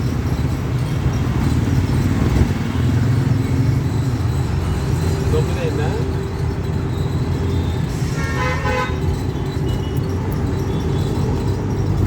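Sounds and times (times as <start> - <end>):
engine low rumble: 0.0 - 12.0
vehicle horn: 8.1 - 9.0.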